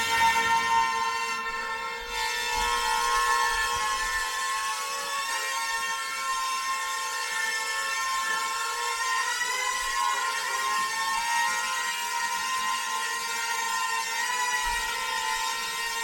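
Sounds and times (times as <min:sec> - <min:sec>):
drone propellers whining: 0:00.0 - 0:01.8.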